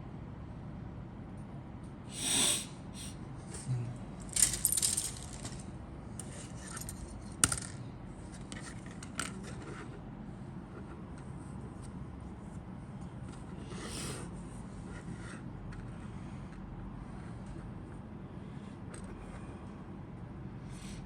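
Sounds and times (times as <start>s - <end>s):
plastic parts clicking and clattering: 4.2s - 9.6s.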